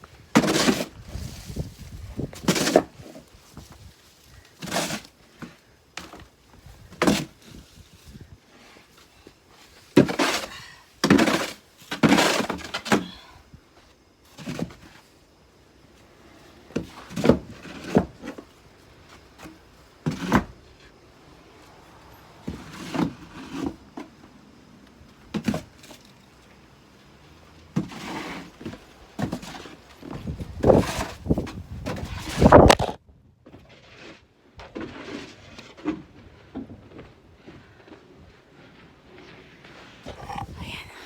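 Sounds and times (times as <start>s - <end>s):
shovel scraping packed snow: 0.4s - 3.2s, 4.2s - 5.2s, 27.8s - 28.7s, 33.7s - 36.4s.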